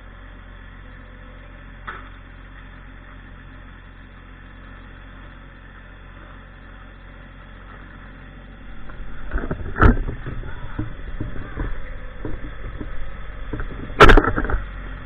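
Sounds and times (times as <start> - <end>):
tractor engine running: 7.5 - 15.0
knocks and clunks: 8.7 - 14.7
sharp crack: 12.1 - 14.7.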